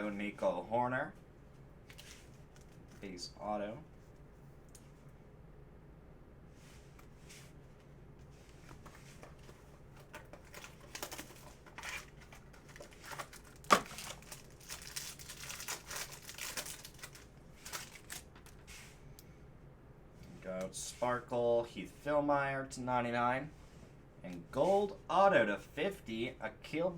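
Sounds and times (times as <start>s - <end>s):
plastic packaging crinkling and tearing: 10.0s - 18.7s.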